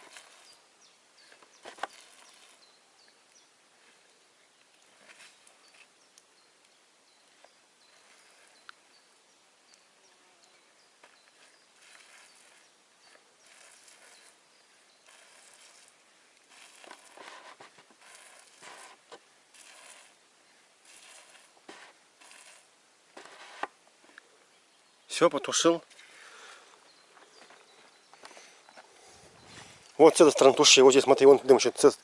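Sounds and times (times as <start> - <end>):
quiet rustling or scuffing: 4.6 - 6.1, 10.6 - 14.4, 15.1 - 20.2, 20.8 - 24.2, 25.8 - 30.7.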